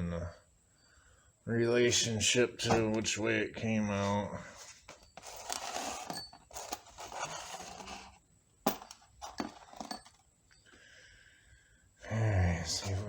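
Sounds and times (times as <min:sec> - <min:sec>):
faint steady hum: 0:00.0 - 0:13.0
metal parts scraping and rustling: 0:04.0 - 0:10.3.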